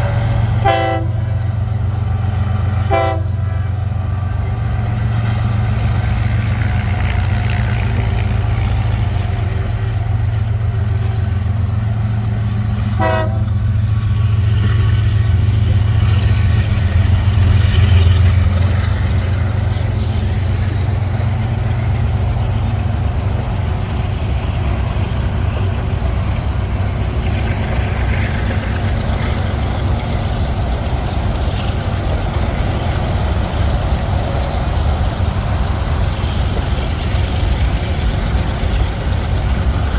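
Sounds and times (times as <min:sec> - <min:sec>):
train horn toot: 0:00.0 - 0:01.6, 0:02.8 - 0:04.5, 0:12.8 - 0:13.8
freight train rumbling past: 0:00.0 - 0:39.9
locomotive engine drone: 0:00.0 - 0:39.9.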